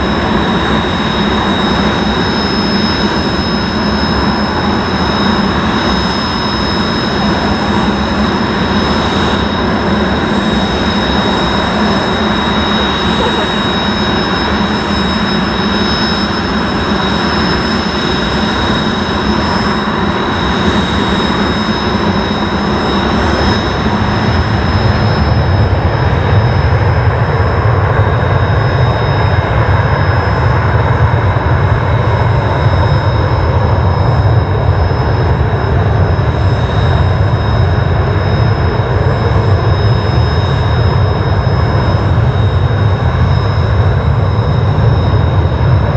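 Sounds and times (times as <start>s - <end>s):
jet engine roaring with whine: 0.0s - 45.9s.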